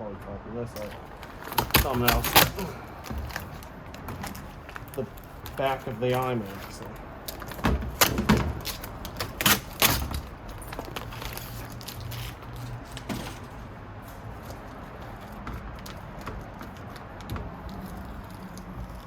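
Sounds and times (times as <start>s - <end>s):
handling noise: 0.7s - 19.0s
computer parts knocking and clattering: 7.3s - 11.0s, 12.7s - 19.0s.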